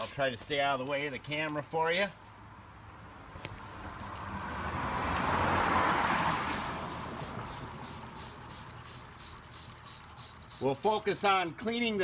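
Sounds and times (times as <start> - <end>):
vehicle passing by: 3.7 - 10.6.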